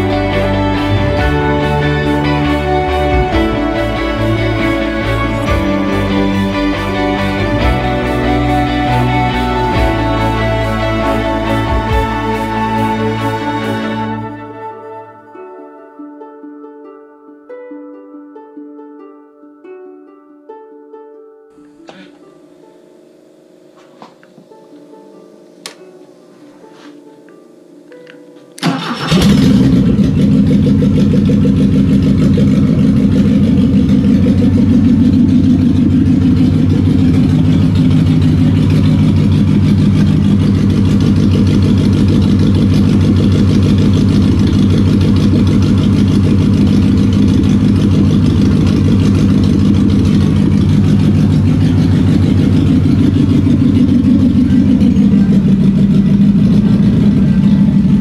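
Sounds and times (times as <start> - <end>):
car engine running steadily: 0.0 - 14.3, 28.6 - 58.0.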